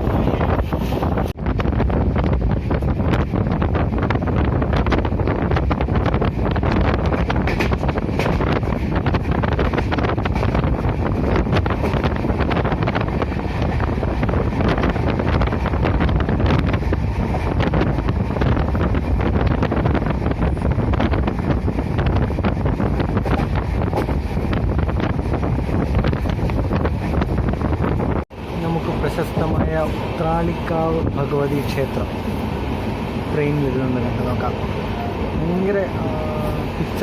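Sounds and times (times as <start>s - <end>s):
train wheels rumbling on track: 0.0s - 37.0s
wind buffeting microphone: 0.0s - 37.0s.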